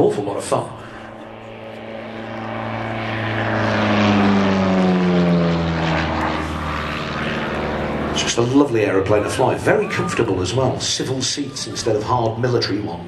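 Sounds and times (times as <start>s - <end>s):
propeller plane flying past: 0.0s - 13.0s.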